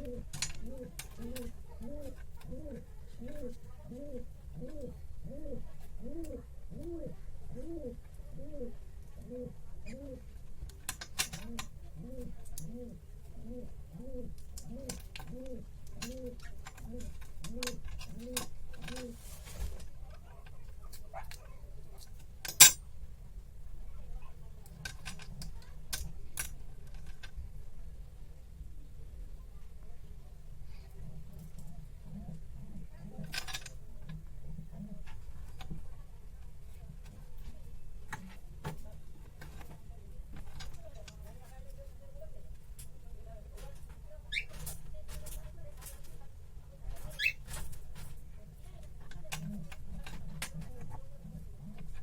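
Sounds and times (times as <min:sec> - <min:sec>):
bird cooing: 0:00.0 - 0:10.3, 0:11.3 - 0:19.2
objects clicking and tapping: 0:22.0 - 0:22.8.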